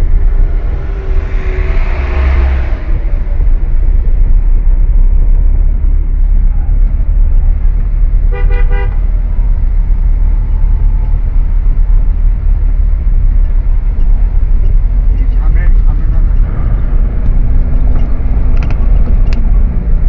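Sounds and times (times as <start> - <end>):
vehicle and wind rumble: 0.0 - 20.0
vehicle horn short beeps: 8.4 - 9.0.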